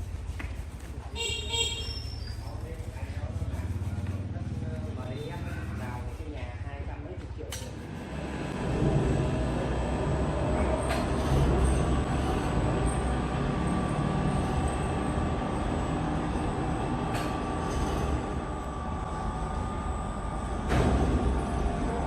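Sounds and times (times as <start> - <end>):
sawmill machinery rumble: 7.7 - 22.0.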